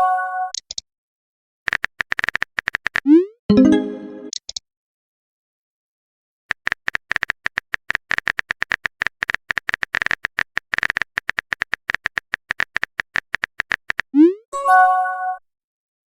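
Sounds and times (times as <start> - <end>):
phone keyboard typing clicks: 1.7 - 3.1, 6.5 - 14.1
message chime: 3.5 - 4.3.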